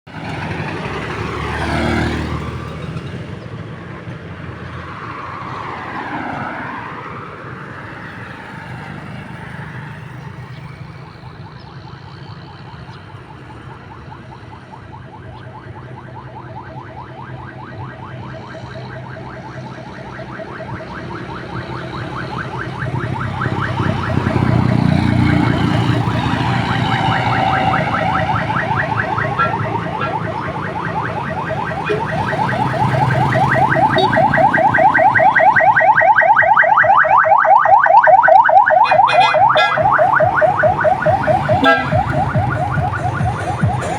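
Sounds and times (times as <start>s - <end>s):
motorcycle engines running: 6.8s - 14.3s, 18.7s - 43.9s
siren-like alarm tone warbling: 16.0s - 43.9s.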